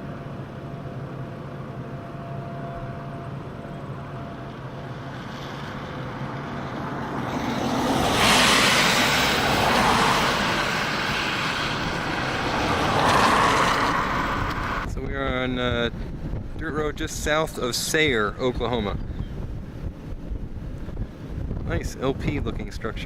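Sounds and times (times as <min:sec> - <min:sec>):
vehicle road and engine noise: 0:00.0 - 0:23.0
loud rushing noise: 0:05.0 - 0:14.9.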